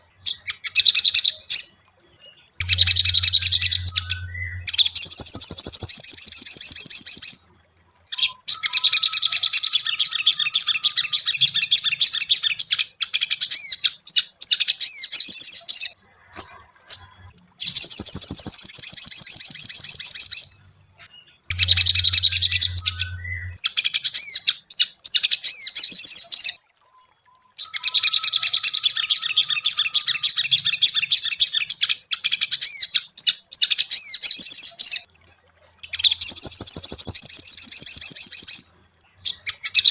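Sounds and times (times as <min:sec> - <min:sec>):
bird chattering chirps: 0:02.4 - 0:07.5, 0:08.1 - 0:32.9.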